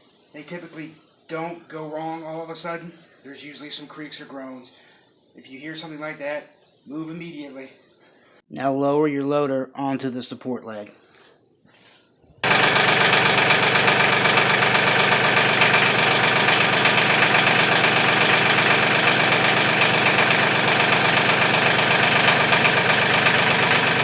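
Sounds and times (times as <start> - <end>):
tractor diesel engine running: 12.4 - 24.0.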